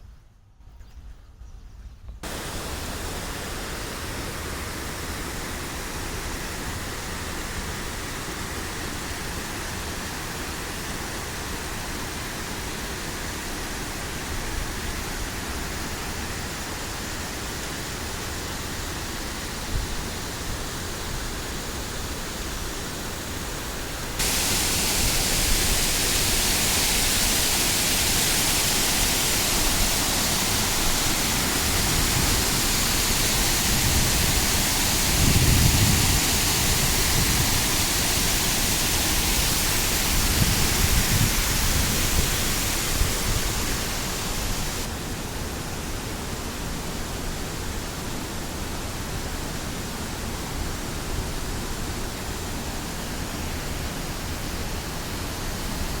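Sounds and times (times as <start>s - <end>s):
water rushing: 2.2s - 45.7s.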